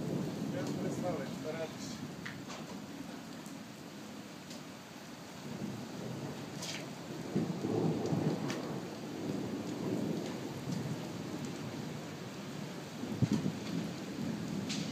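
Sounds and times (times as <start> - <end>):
thunder rumbling: 0.0 - 2.8, 5.4 - 14.9
steady rain: 0.0 - 14.9.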